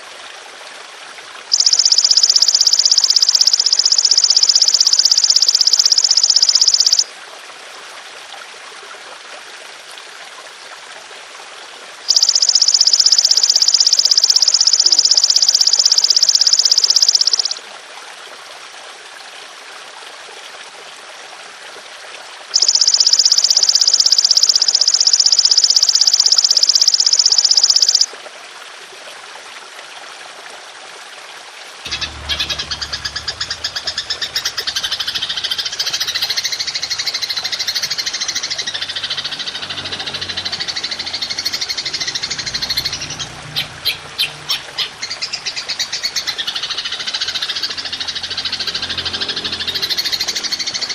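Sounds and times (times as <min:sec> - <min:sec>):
trickle of water: 0:00.0 - 0:50.9
rapidly pulsing call: 0:01.5 - 0:07.1, 0:12.1 - 0:17.6, 0:22.6 - 0:28.1, 0:31.9 - 0:50.9
insect buzzing trills: 0:31.9 - 0:48.2.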